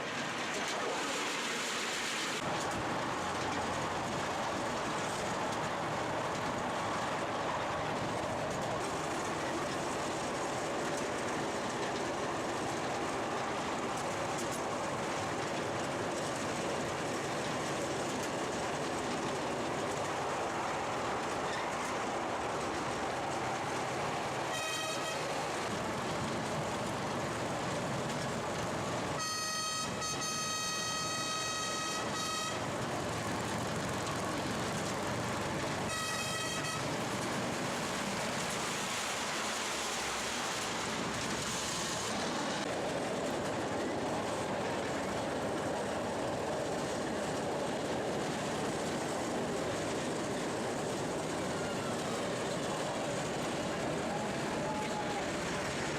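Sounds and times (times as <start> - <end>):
running train noise: 0.0 - 55.9
locomotive whistle: 24.4 - 25.4, 29.1 - 32.8, 35.8 - 37.0.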